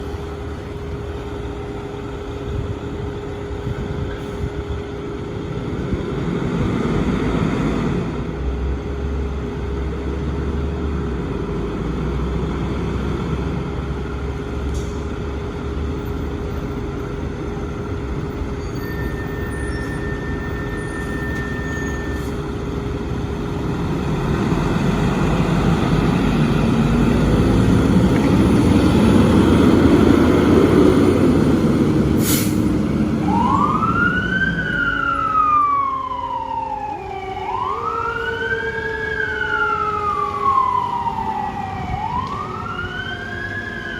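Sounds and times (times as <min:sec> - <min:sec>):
heavy engine rumble: 0:00.0 - 0:43.9
steady traffic: 0:00.0 - 0:43.9
fire engine siren: 0:12.1 - 0:43.9.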